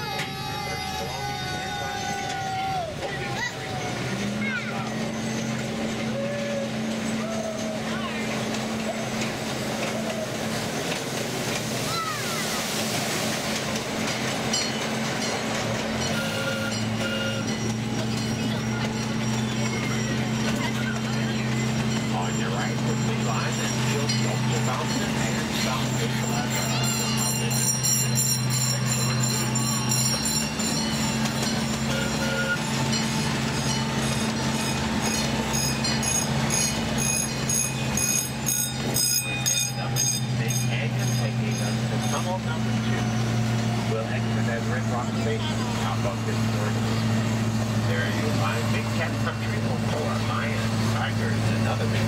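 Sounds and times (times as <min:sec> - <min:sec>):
high wheel squeals: 0:00.0 - 0:12.6, 0:14.4 - 0:52.0
miniature train engine hum: 0:00.0 - 0:52.0
rumbling wheel and rail noise: 0:00.0 - 0:52.0
bell ringing: 0:14.5 - 0:42.7.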